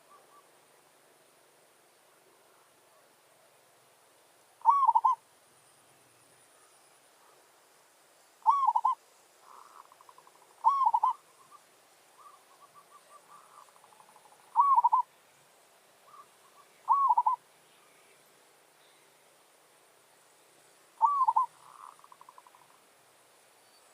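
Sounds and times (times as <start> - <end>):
dove cooing: 4.6 - 5.2, 8.4 - 11.2, 12.2 - 15.1, 16.1 - 17.4, 21.0 - 22.7
soft rapid trilling coos: 4.6 - 5.2, 8.4 - 11.5, 12.2 - 15.1, 16.9 - 17.4, 21.0 - 22.8.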